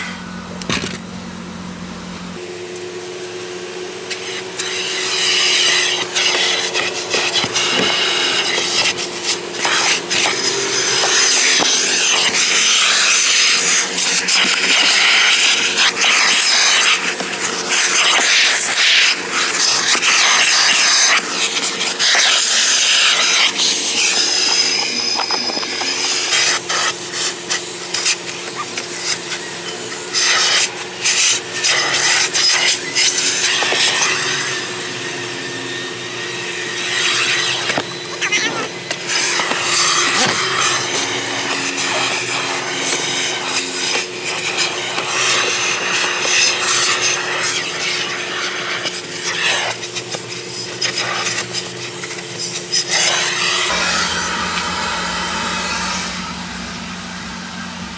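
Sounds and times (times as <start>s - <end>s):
stiff brush scrubbing floor mat: 4.1s - 57.9s
steady hum: 53.7s - 57.9s.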